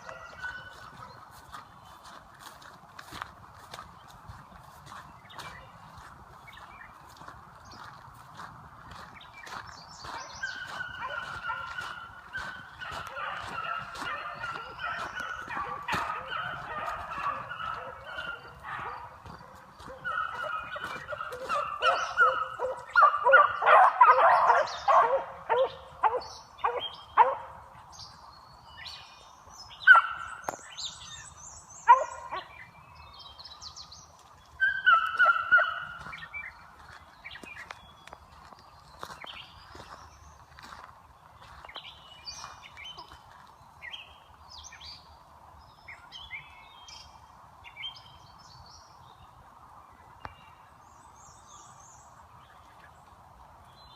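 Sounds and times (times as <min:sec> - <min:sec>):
beagles baying: 0:00.0 - 0:01.4, 0:10.0 - 0:27.6, 0:31.8 - 0:32.7, 0:34.6 - 0:36.6.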